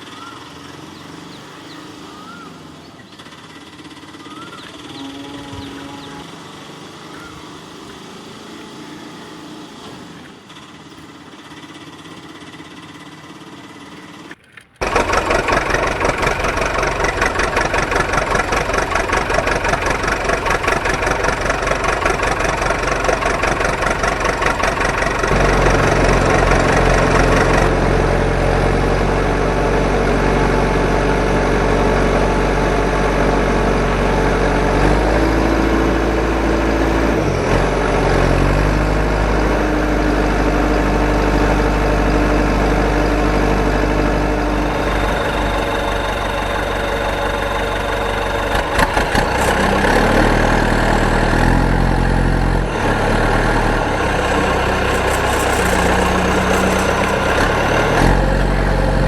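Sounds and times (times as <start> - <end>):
loud pulsing engine: 0.0 - 59.0
deep steady hum: 14.8 - 59.0.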